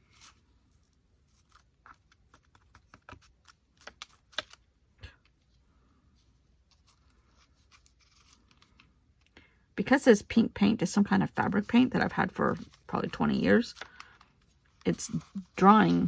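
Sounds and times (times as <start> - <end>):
paper rustling: 6.2 - 9.0, 11.4 - 16.0.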